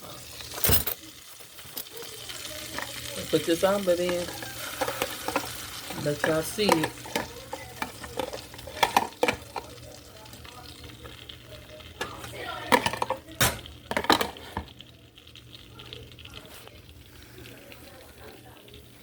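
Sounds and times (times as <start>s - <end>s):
egg sizzling in a frying pan: 0.0s - 19.0s
utensil scraping a pan: 2.8s - 9.7s.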